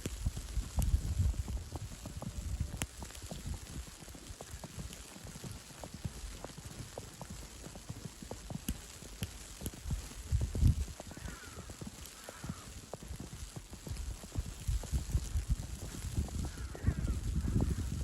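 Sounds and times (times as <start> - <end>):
soft steady hiss: 0.0 - 18.0
footsteps crunching on snow: 8.2 - 12.7.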